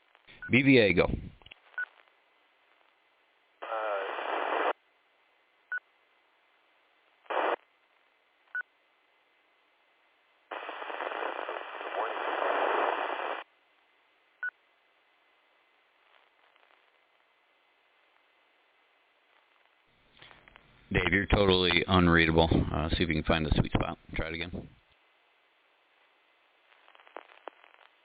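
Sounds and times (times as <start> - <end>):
radio hiss with faint voice: 3.6 - 4.8, 7.3 - 7.7, 10.5 - 13.4, 19.3 - 24.7, 26.7 - 28.0
radio squelch blips: 3.6 - 4.8, 7.3 - 7.6, 10.5 - 13.4, 20.2 - 21.9.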